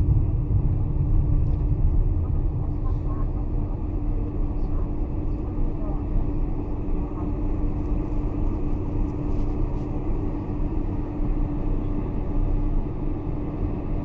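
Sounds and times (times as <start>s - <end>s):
low rumble: 0.0s - 7.2s
airplane cabin engine hum: 0.0s - 14.0s.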